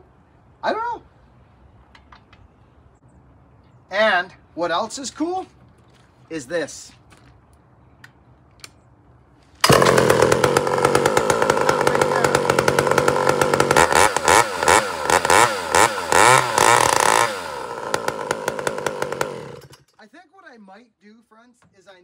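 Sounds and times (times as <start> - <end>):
chainsaw revving: 9.6 - 19.9.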